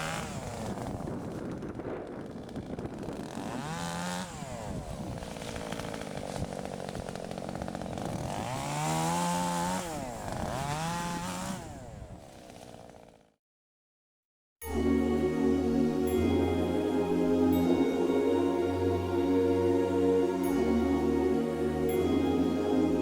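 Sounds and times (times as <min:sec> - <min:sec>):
chainsaw engine revving: 0:00.0 - 0:13.4.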